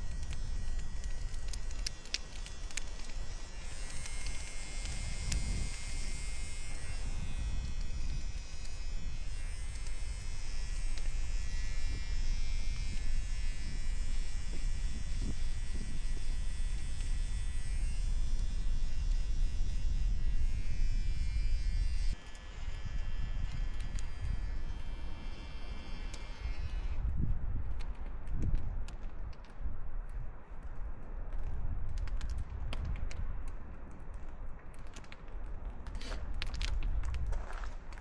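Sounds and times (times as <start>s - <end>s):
electric trimmer buzzing: 0.0s - 27.1s
wind rumble on microphone: 0.0s - 38.0s.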